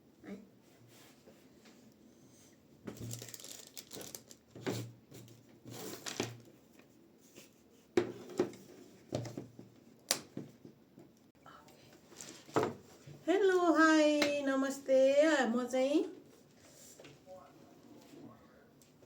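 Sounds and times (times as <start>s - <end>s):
handling rustling: 12.1s - 13.1s.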